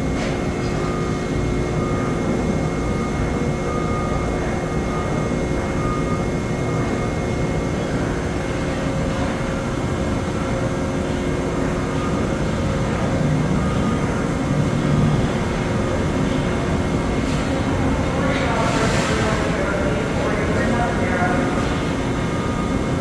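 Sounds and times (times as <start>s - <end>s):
factory floor rumble: 0.0s - 23.0s
machine hum with constant tones: 0.0s - 23.0s.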